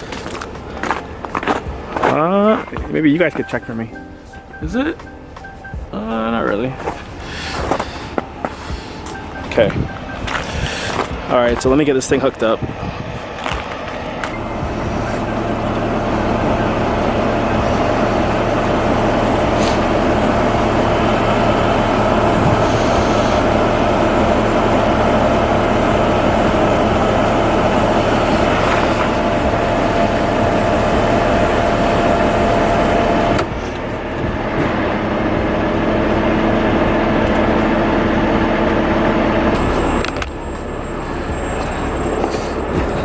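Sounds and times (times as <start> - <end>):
diesel truck engine idling: 0.0 - 43.0
steady tone: 1.7 - 33.6.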